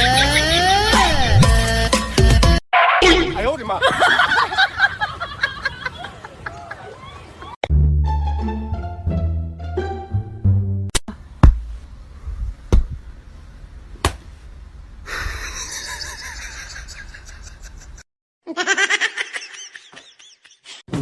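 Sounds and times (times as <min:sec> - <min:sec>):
person laughing: 0:00.0 - 0:01.2, 0:03.8 - 0:04.9, 0:15.1 - 0:20.8
sharp knocks: 0:11.4 - 0:11.7, 0:14.0 - 0:14.2.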